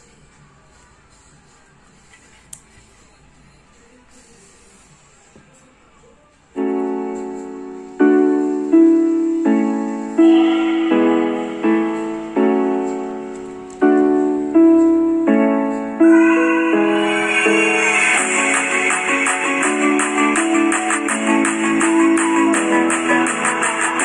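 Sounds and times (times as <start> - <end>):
piano chords through small speaker: 6.5 - 24.0.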